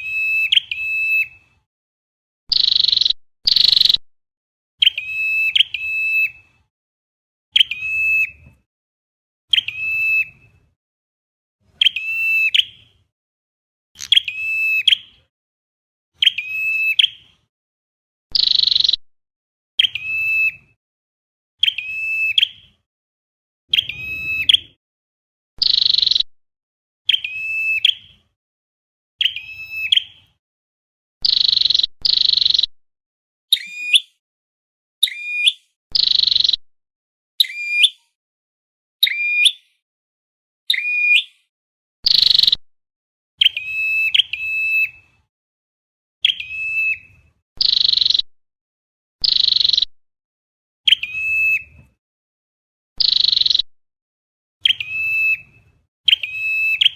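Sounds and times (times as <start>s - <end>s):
sharp high bird calls: 0.0s - 1.4s, 2.5s - 4.0s, 4.8s - 6.5s, 7.6s - 8.4s, 9.5s - 10.4s, 11.7s - 12.9s, 14.0s - 15.2s, 16.2s - 17.3s, 18.3s - 19.0s, 19.8s - 20.7s, 21.6s - 22.8s, 23.7s - 24.8s, 25.6s - 26.3s, 27.1s - 28.2s, 29.2s - 30.4s, 31.2s - 32.7s, 33.5s - 34.2s, 35.0s - 36.6s, 37.4s - 38.2s, 39.0s - 39.8s, 40.7s - 41.4s, 42.0s - 42.6s, 43.4s - 45.1s, 46.2s - 48.3s, 49.2s - 49.9s, 50.9s - 51.7s, 53.0s - 53.7s, 54.6s - 55.5s, 56.1s - 56.9s.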